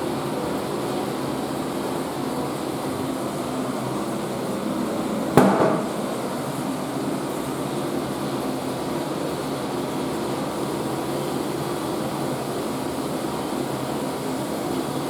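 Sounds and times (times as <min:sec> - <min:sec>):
toilet cistern refilling: 0:02.5 - 0:07.3.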